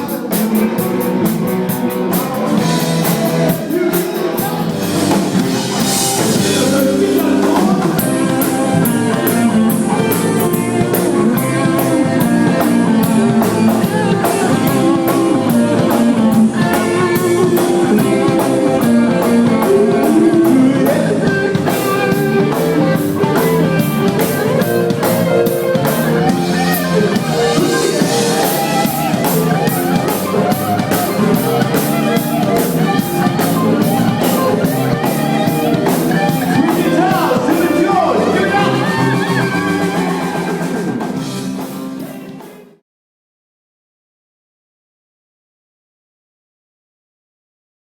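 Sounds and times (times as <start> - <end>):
drum kit with cymbals: 0.0 - 42.8
guitar: 0.0 - 42.8
person singing: 0.0 - 42.8.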